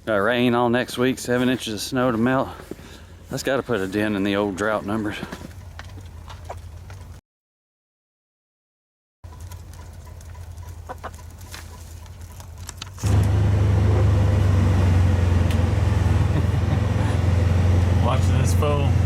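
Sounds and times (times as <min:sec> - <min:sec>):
low engine drone: 0:13.0 - 0:19.0.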